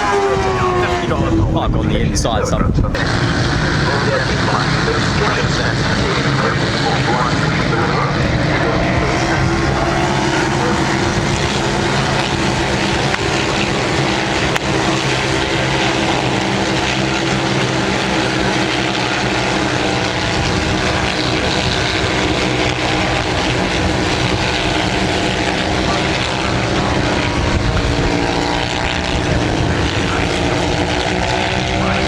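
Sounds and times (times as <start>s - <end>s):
motorcycle engines at high revs: 2.3s - 32.0s.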